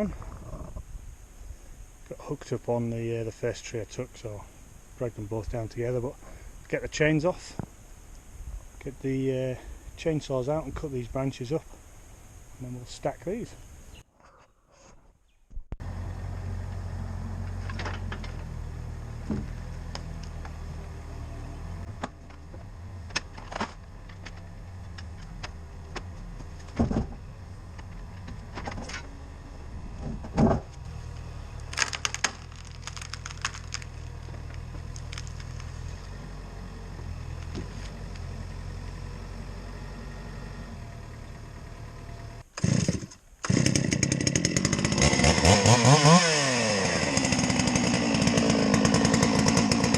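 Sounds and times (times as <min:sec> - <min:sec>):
diesel engine idling: 0:30.7 - 0:42.5
chainsaw starting: 0:30.8 - 0:36.4, 0:41.1 - 0:49.9.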